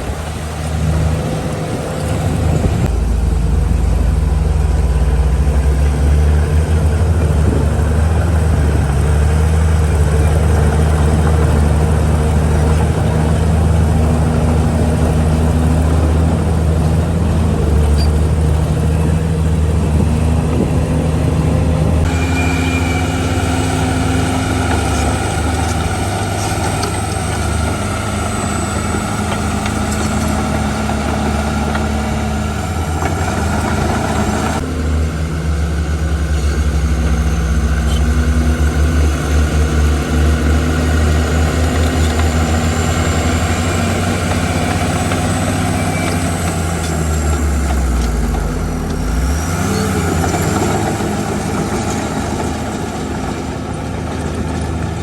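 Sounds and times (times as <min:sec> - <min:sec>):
diesel machinery engine running: 0:00.0 - 0:55.0.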